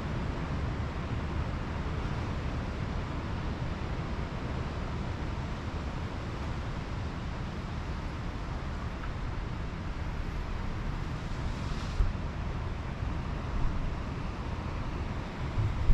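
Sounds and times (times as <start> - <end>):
wind rumbling on microphone: 8.9 - 15.9
surf washing on a beach: 9.3 - 15.9.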